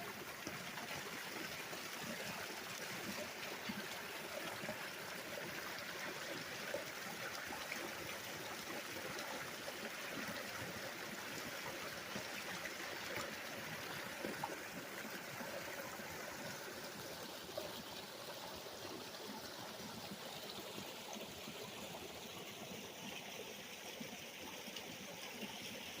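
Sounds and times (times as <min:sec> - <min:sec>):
stream babbling: 0:00.0 - 0:26.0.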